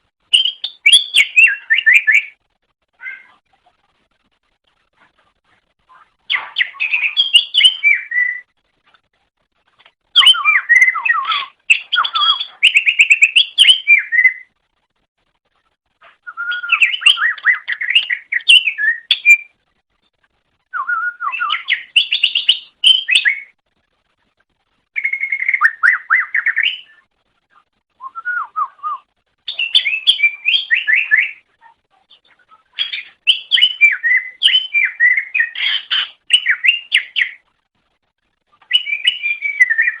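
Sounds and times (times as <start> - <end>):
bird warbling: 32.2 - 37.4.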